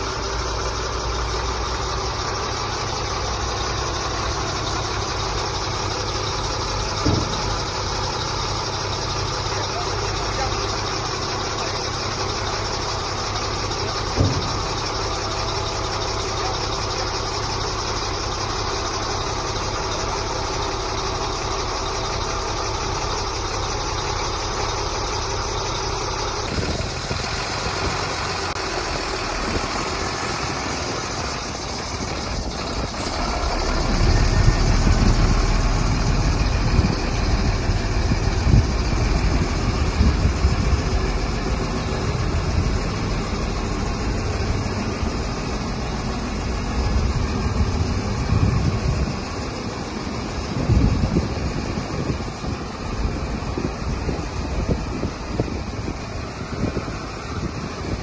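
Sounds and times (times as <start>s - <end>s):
deep rumble with thumps: 0.0s - 28.1s, 30.6s - 58.0s
diesel truck engine idling: 0.0s - 58.0s.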